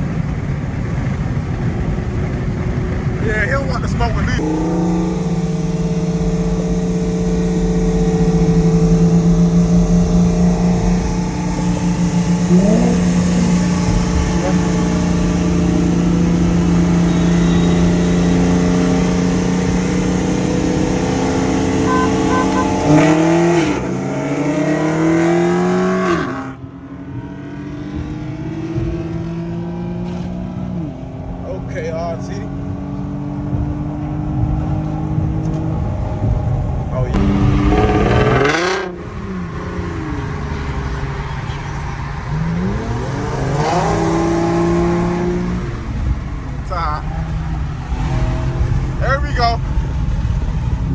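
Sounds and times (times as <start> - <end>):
car engine revving: 0.0 - 50.9
loud exhaust drone: 4.4 - 26.0.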